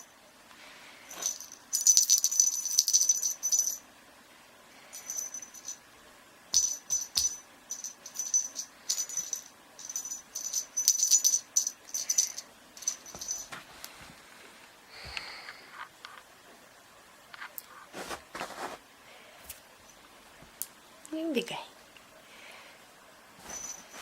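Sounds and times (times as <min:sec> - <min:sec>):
rattle jingling: 0:01.1 - 0:03.8, 0:04.9 - 0:05.8, 0:06.5 - 0:13.6, 0:23.4 - 0:24.0.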